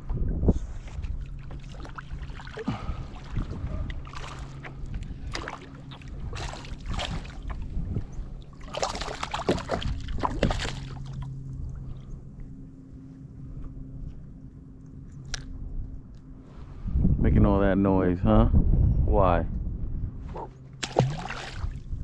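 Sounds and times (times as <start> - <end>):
low steady hum: 0.0 - 22.0
water sloshing against kayak hull: 0.8 - 12.6, 20.8 - 22.0.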